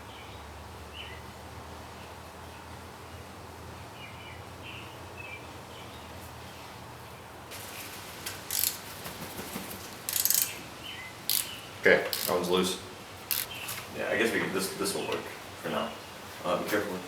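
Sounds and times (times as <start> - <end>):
hand tool clicks: 8.5 - 8.8, 10.1 - 10.6, 11.3 - 12.4.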